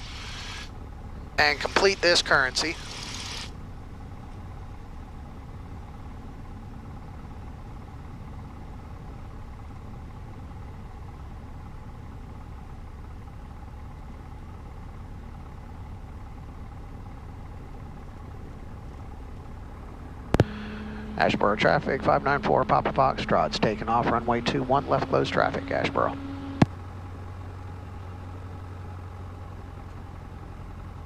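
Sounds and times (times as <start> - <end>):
aircraft engine idling: 0.0 - 31.0.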